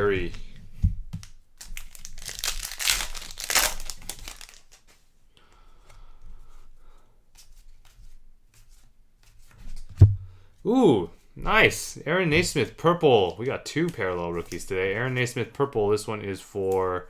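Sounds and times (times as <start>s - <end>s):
plastic wrapper crumpled and torn: 1.2s - 5.0s
cards rustling: 1.2s - 5.1s, 12.2s - 17.0s.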